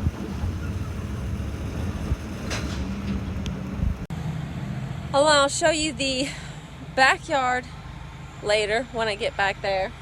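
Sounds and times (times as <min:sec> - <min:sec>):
engine humming: 0:00.0 - 0:04.2.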